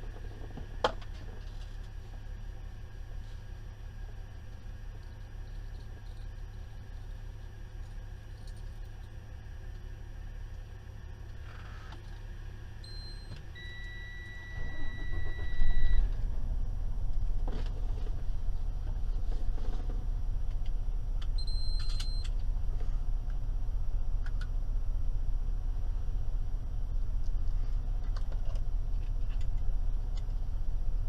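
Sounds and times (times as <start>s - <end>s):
truck engine idling: 0.0s - 31.0s
diesel engine cranking: 11.2s - 23.0s
dashboard warning beep: 12.8s - 16.2s, 21.4s - 22.3s
short beeps: 12.8s - 16.2s, 21.4s - 22.3s.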